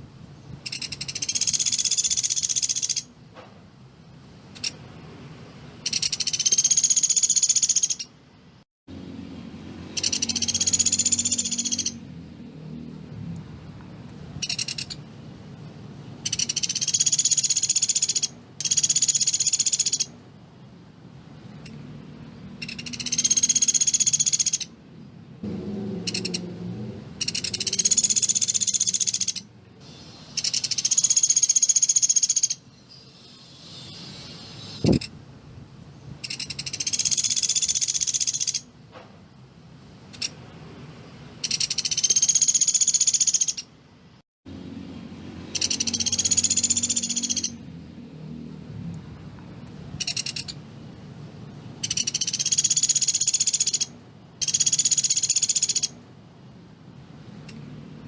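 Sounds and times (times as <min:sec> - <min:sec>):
woodpecker rattling trills: 0:00.6 - 0:03.1, 0:05.8 - 0:08.1, 0:09.9 - 0:12.0, 0:14.4 - 0:15.0, 0:16.2 - 0:20.1, 0:22.6 - 0:24.7, 0:26.0 - 0:26.4, 0:27.2 - 0:29.5, 0:30.4 - 0:32.6, 0:36.2 - 0:38.7, 0:41.4 - 0:43.7, 0:45.5 - 0:47.6, 0:50.0 - 0:50.6, 0:51.8 - 0:56.0.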